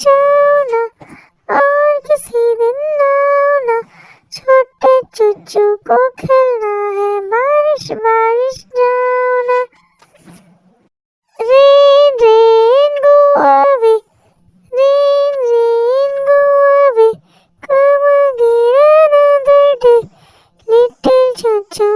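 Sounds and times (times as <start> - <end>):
high cartoon voice singing: 0.0 - 9.8, 11.3 - 14.0, 14.7 - 21.9.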